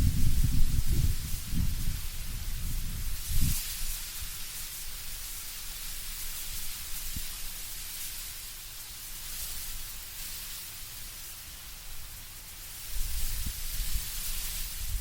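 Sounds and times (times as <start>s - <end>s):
wind rustling leaves: 0.0s - 15.0s.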